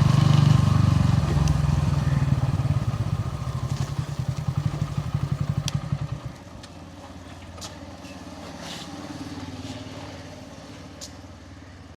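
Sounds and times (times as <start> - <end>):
motorcycle exhaust pulsing: 0.0 - 6.5.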